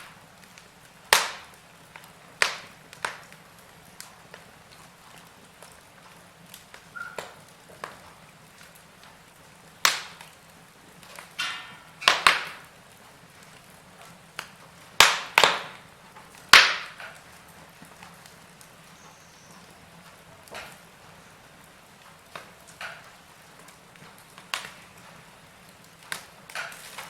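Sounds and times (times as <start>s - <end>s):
burning wood popping: 0.0s - 27.0s
wood fire crackling: 0.0s - 27.0s
faint hiss: 15.7s - 27.0s.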